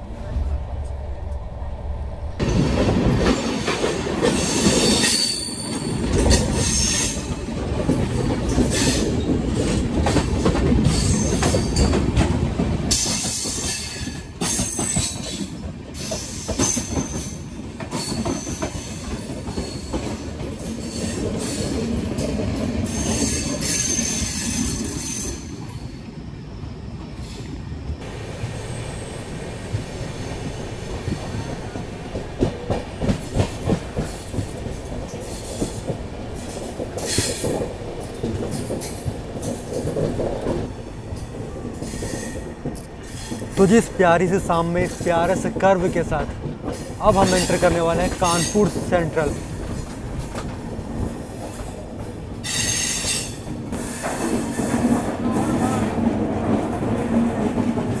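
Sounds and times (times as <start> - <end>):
train rumble with clickety-clack: 0.0 - 58.0
train wheels squealing: 3.3 - 7.5, 8.2 - 9.8, 10.8 - 12.1, 12.8 - 28.0, 33.0 - 43.8, 46.7 - 51.8, 52.4 - 55.8.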